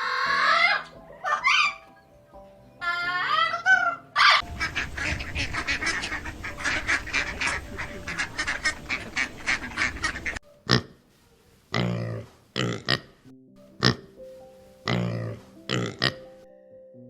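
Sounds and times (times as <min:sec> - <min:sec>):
waterfowl honking and quacking: 0:02.8 - 0:10.4.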